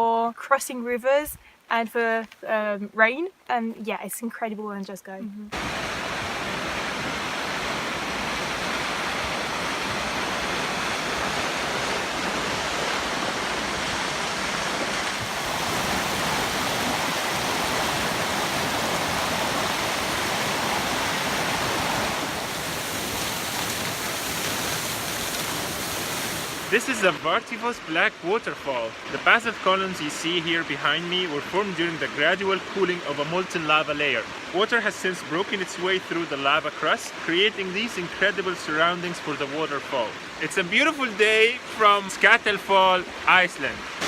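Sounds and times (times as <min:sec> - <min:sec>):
waterfall rushing: 0:05.5 - 0:44.0.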